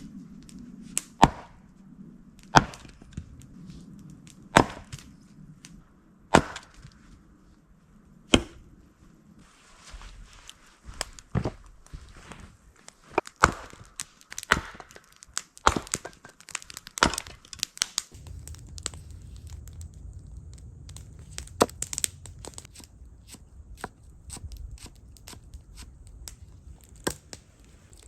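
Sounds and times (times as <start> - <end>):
sharp cracking and tearing: 13.2 - 28.0
clicks and snaps: 14.0 - 28.0
low rumble: 18.1 - 28.0.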